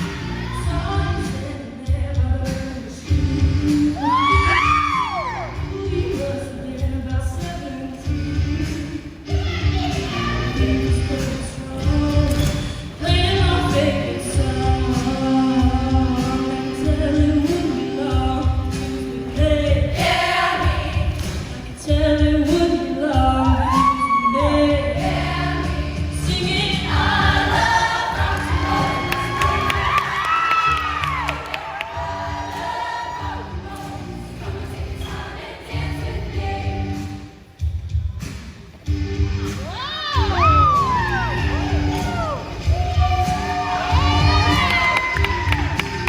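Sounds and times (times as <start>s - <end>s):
choir singing: 5.4s - 21.9s, 24.6s - 30.4s, 31.5s - 37.4s
heavy pulsing bass: 24.6s - 30.0s
band with steady drum beat: 36.3s - 46.0s.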